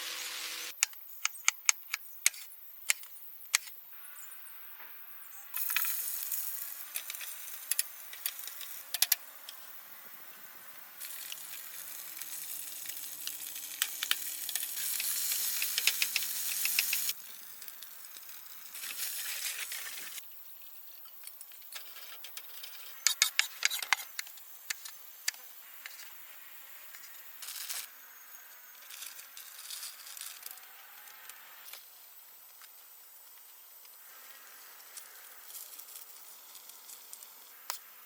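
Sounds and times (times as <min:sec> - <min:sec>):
food sizzling in a pan: 0:00.0 - 0:00.7, 0:05.5 - 0:08.8, 0:11.0 - 0:20.2.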